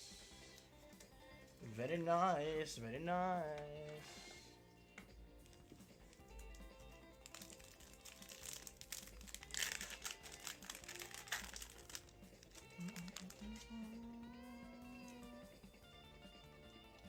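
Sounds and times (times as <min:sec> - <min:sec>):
background music: 0:00.0 - 0:17.0
foil wrapper crinkling: 0:05.5 - 0:13.8.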